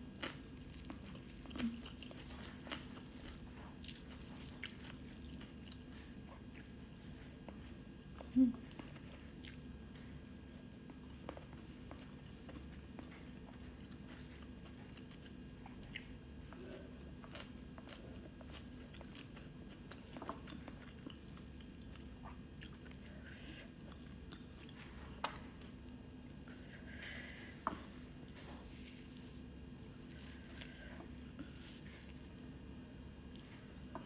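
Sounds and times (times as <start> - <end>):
person chewing food: 0.0 - 34.0.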